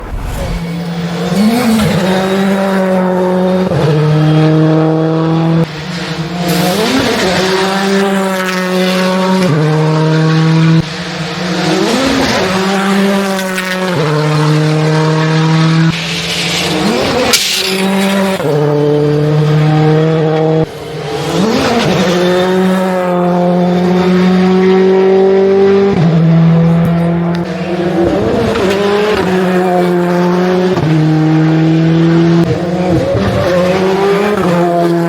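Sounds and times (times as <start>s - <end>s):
rally car engines revving: 0.0s - 35.0s.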